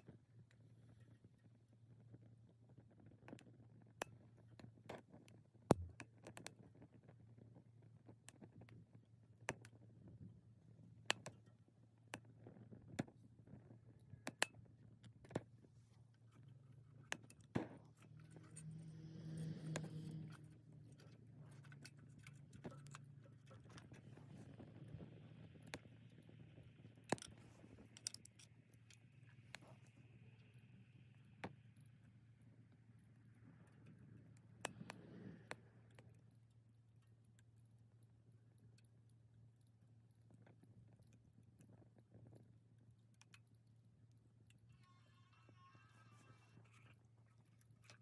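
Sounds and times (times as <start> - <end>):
wood fire crackling and popping: 5.7 - 6.1
stove fan humming: 17.8 - 30.9
soft hissing: 18.1 - 21.0.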